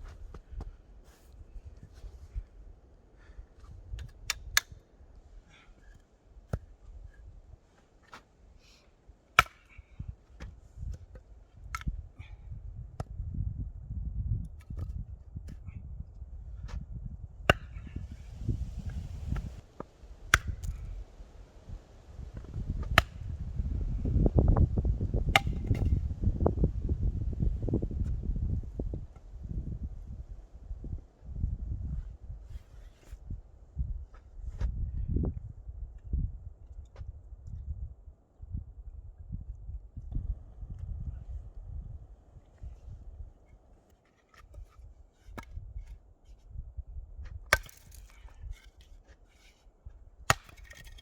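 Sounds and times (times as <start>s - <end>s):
wood being chopped: 9.4s - 9.8s, 17.5s - 18.0s, 20.3s - 20.9s, 22.8s - 23.2s, 25.3s - 26.0s, 44.3s - 45.9s, 47.5s - 48.8s, 50.3s - 51.0s.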